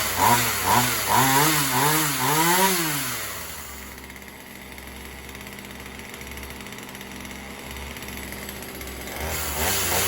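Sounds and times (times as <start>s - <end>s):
chainsaw engine idling: 0.0s - 10.0s.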